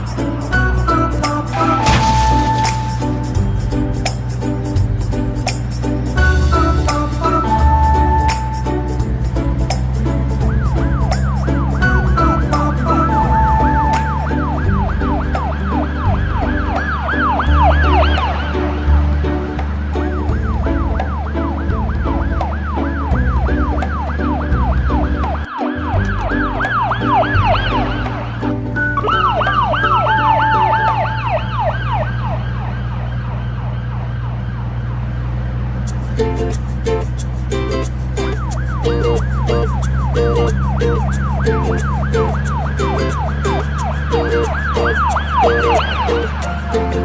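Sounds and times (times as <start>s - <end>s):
music with steady bass line: 0.0s - 31.6s, 35.9s - 47.0s
police siren wailing: 0.2s - 3.6s, 6.2s - 9.0s, 10.4s - 35.2s, 38.2s - 47.0s
low rumble: 1.6s - 5.4s
second siren: 10.5s - 18.4s, 20.1s - 28.2s, 28.8s - 34.9s, 38.4s - 47.0s.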